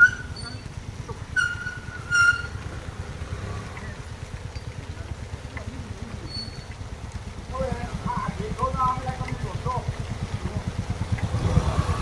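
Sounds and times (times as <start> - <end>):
motorcycle engines running: 0.0 - 12.0.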